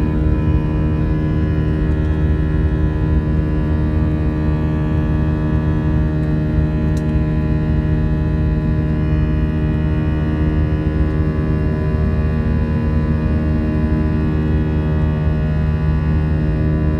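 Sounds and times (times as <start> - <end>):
airplane cabin engine hum: 0.0 - 16.9.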